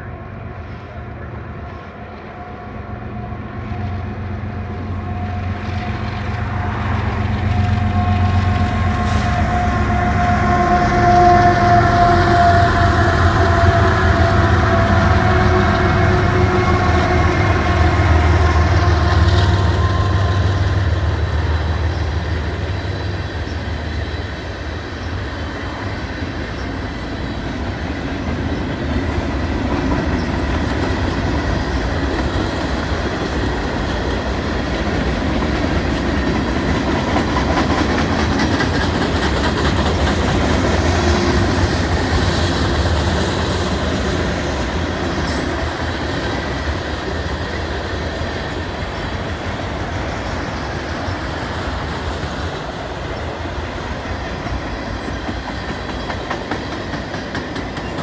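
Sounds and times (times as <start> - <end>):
diesel locomotive engines humming: 0.0 - 58.0
freight cars rumbling on rails: 0.0 - 58.0
wheels clacking over rail joints: 26.4 - 58.0.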